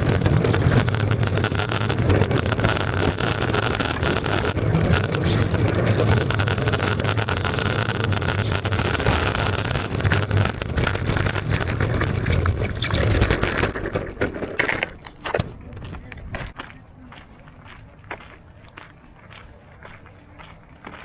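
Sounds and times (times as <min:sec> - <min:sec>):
longboard wheels rolling on pavement: 0:00.0 - 0:16.6
scattered clicks: 0:00.0 - 0:16.6.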